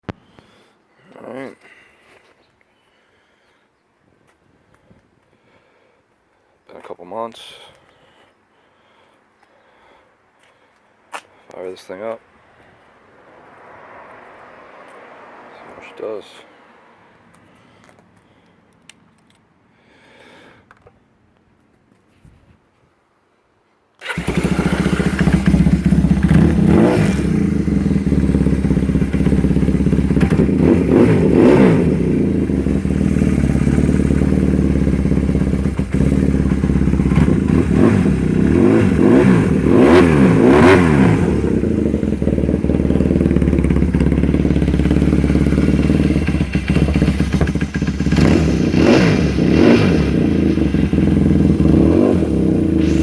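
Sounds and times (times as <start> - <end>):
motorcycle engine idling: 24.0 - 39.7, 41.3 - 53.0.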